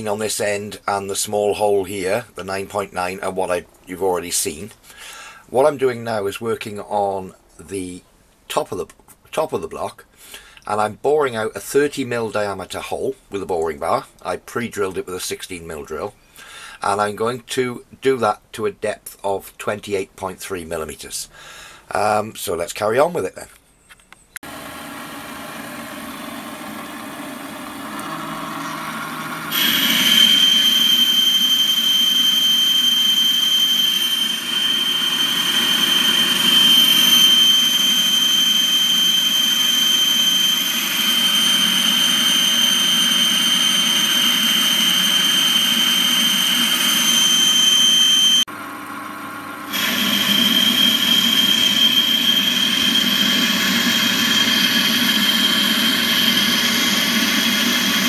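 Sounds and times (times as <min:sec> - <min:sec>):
metal lathe cutting: 0:24.5 - 0:48.5, 0:49.7 - 0:58.0
high-pitched whine: 0:27.8 - 0:48.5, 0:49.7 - 0:58.0.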